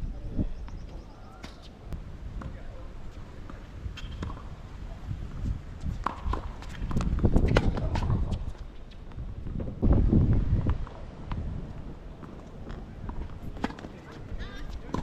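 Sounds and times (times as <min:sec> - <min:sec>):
wind buffeting microphone: 0:00.0 - 0:15.0
tennis balls struck and bouncing: 0:03.4 - 0:04.6, 0:05.2 - 0:08.4, 0:12.2 - 0:15.0
footsteps on court: 0:10.6 - 0:15.0.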